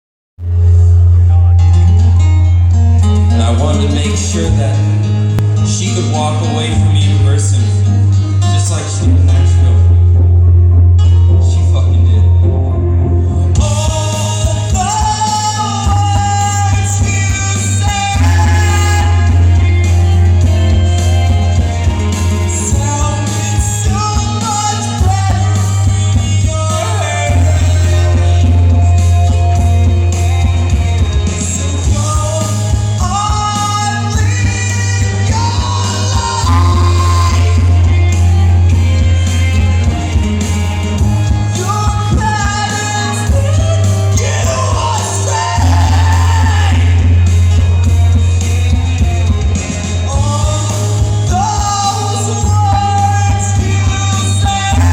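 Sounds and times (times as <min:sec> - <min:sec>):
heavy bass: 0:00.4 - 0:54.9
live rock band playing: 0:00.4 - 0:54.9
person singing: 0:13.4 - 0:40.2, 0:41.4 - 0:47.4, 0:50.0 - 0:54.9.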